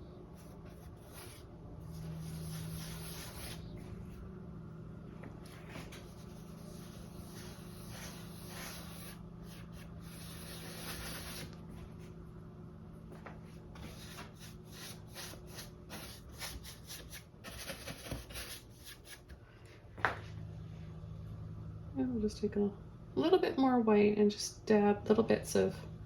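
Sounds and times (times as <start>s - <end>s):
paintbrush scrubbing surface: 0.4s - 4.1s, 5.4s - 11.8s, 13.8s - 19.2s.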